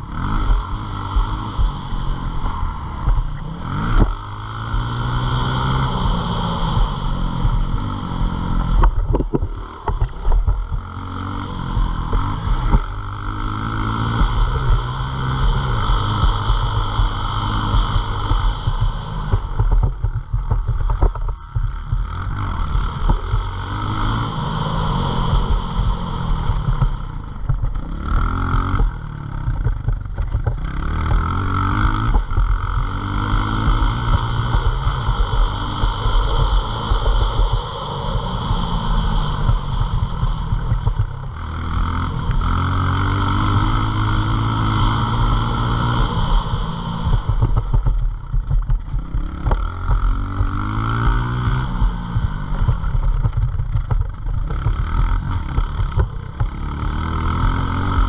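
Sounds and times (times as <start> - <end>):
small motorbike engine revving: 0.0 - 58.0
steady rushing noise: 0.0 - 58.0.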